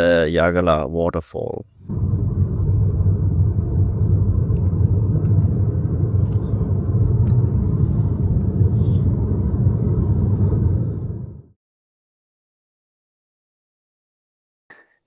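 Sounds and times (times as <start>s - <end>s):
car tyre and engine rumble: 1.8s - 11.5s.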